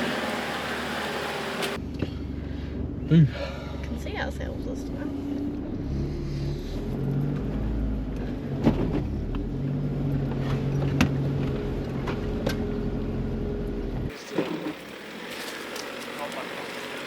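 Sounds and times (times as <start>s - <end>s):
engine running at low revs: 0.0s - 17.0s.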